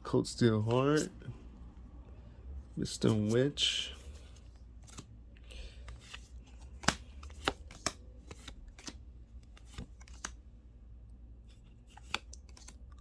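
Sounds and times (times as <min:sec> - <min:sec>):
cards flicking and slapping: 0:04.8 - 0:10.4, 0:11.8 - 0:13.0.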